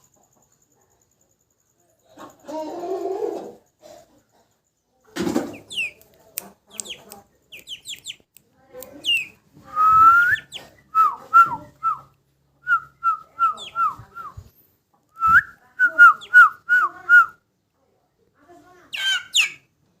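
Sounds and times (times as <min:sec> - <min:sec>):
chicks peeping: 0:05.4 - 0:08.2, 0:08.8 - 0:11.6, 0:13.4 - 0:14.5.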